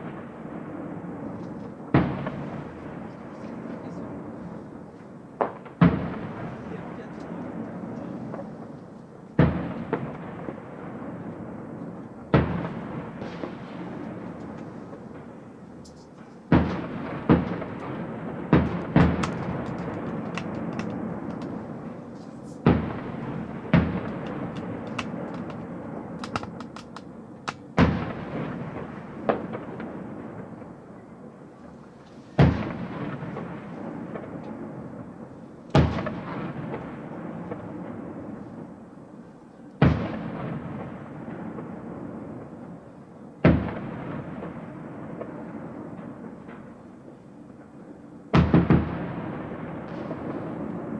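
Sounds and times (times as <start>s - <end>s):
fireworks crackling: 0.0s - 30.7s
fireworks bangs with echo: 0.0s - 31.3s, 32.4s - 39.0s, 39.8s - 50.9s.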